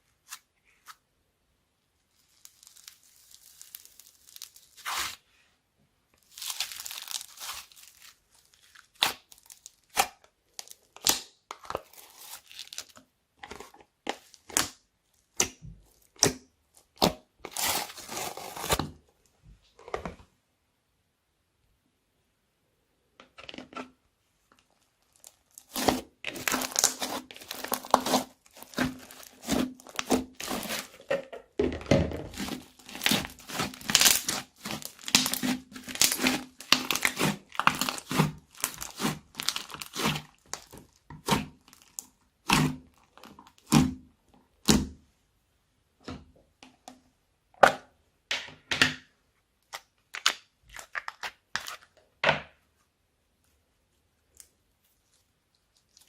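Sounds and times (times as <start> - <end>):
slime squishing and popping: 25.1 - 30.9, 32.3 - 44.0.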